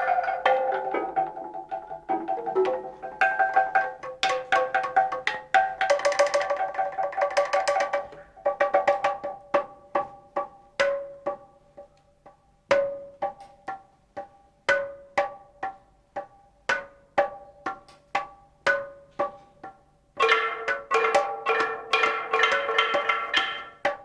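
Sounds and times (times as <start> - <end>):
struck percussion ringing strokes: 12.7 - 24.0.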